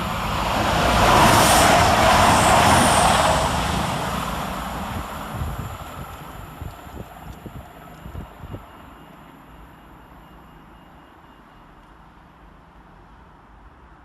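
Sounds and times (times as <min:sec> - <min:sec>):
train passing at speed: 0:00.0 - 0:10.9.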